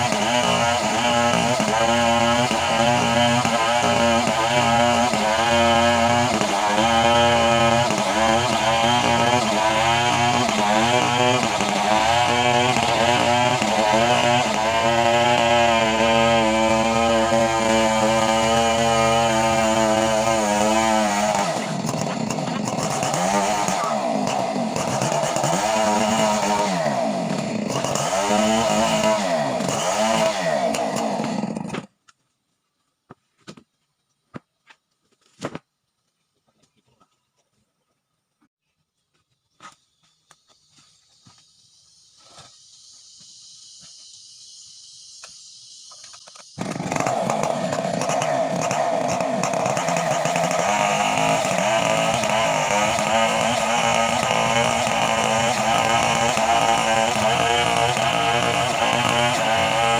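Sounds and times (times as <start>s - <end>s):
chainsaw engine revving: 0.0s - 31.9s, 46.6s - 59.9s.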